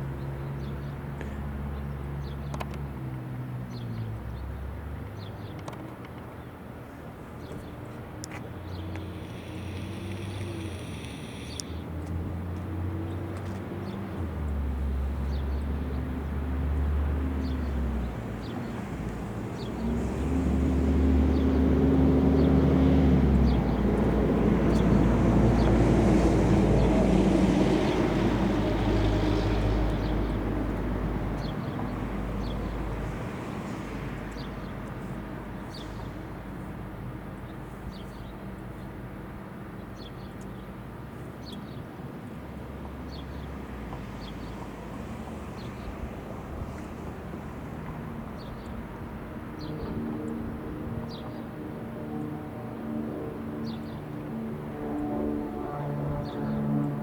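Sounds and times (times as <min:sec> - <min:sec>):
motor vehicle passing: 0:08.6 - 0:36.4.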